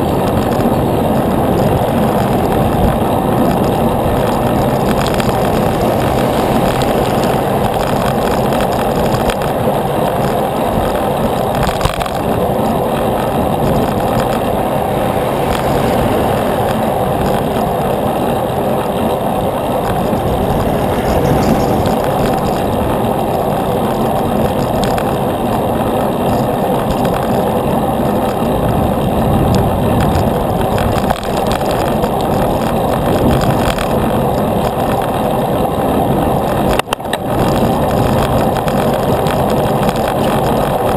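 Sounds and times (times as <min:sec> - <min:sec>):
road noise: 0:00.0 - 0:40.9
wind rushing over microphone: 0:00.0 - 0:40.9.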